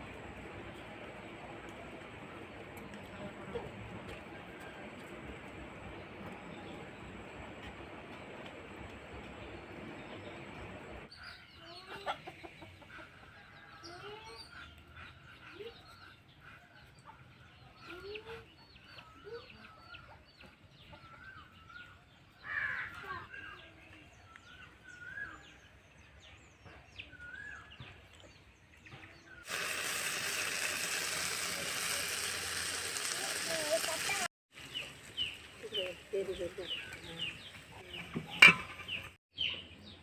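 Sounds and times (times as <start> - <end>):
birds calling: 6.2 - 40.0
chickens clucking: 11.6 - 17.4
steady hiss: 29.5 - 34.8.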